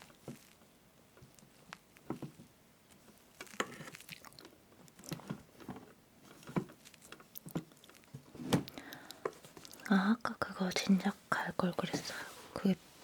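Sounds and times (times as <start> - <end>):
chewing: 3.4 - 5.2, 6.8 - 8.2.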